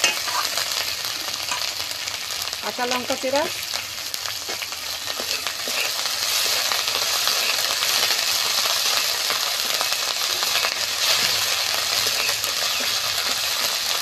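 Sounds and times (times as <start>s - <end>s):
vegetables sizzling in hot oil: 0.0s - 14.0s
spatula scraping and stirring: 4.4s - 13.8s.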